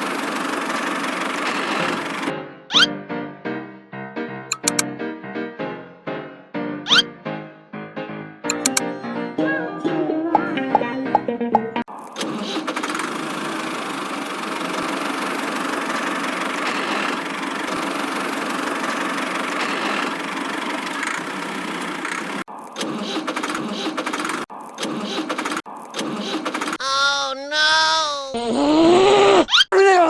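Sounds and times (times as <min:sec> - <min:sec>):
engine running: 0:00.0 - 0:02.3, 0:12.6 - 0:22.5.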